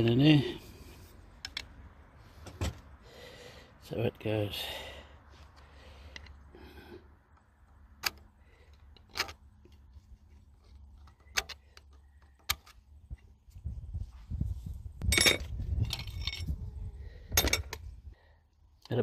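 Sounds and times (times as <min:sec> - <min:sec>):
metal rattling and scraping: 0:15.0 - 0:17.9.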